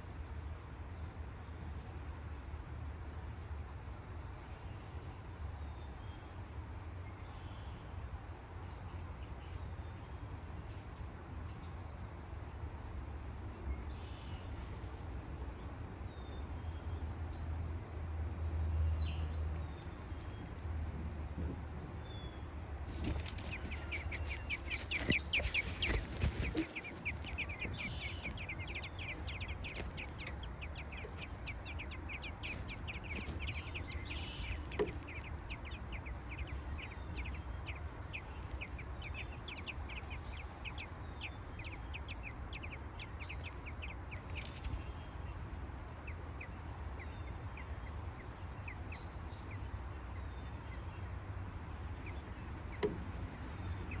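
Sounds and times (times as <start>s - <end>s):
steady low hum: 0.0s - 54.0s
nestlings begging chirps: 17.9s - 54.0s.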